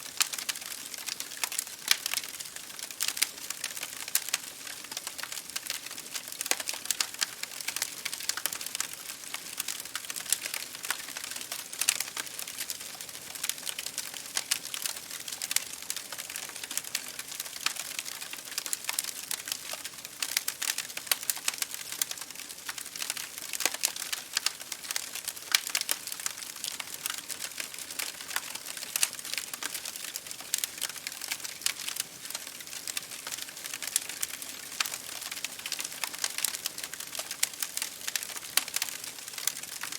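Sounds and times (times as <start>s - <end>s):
campfire crackling and popping: 0.1s - 39.9s.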